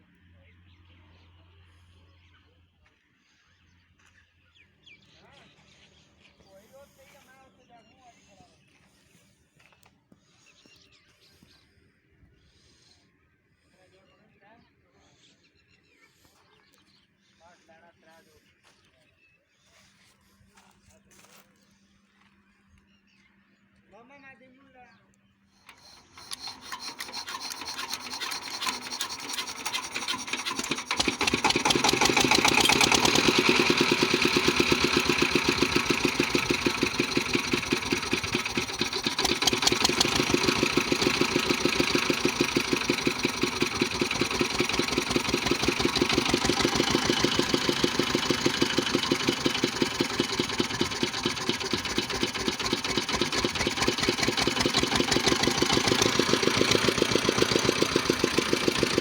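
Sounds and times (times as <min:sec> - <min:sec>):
diesel engine starting and running: 0:25.6 - 0:59.0.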